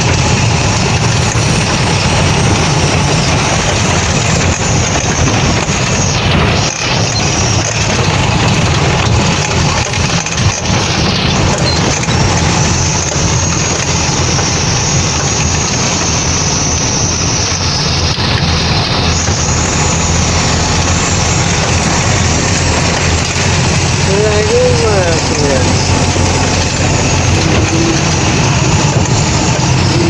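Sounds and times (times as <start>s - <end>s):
truck engine running: 0.0s - 30.0s
loud noisy hiss: 12.3s - 30.0s.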